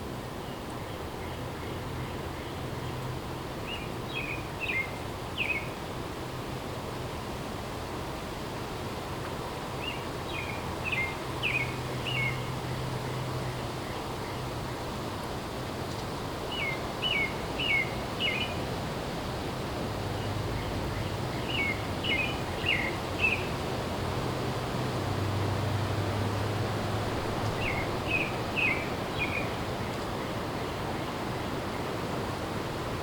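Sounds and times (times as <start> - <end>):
background hiss: 0.0 - 33.0
songbird chirping: 20.2 - 23.6, 27.3 - 30.0.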